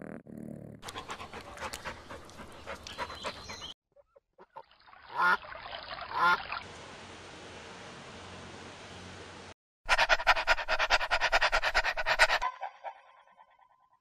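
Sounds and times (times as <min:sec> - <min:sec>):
dog panting: 0:00.8 - 0:03.8, 0:09.9 - 0:12.5.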